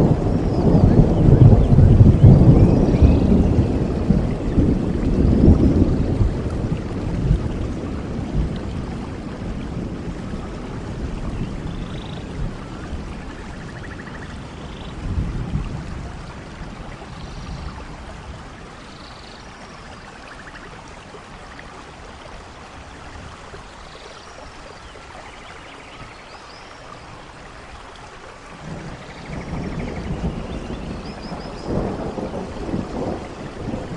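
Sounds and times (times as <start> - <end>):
rolling thunder: 0.0 - 18.8, 28.5 - 33.9
steady rain: 0.0 - 33.9.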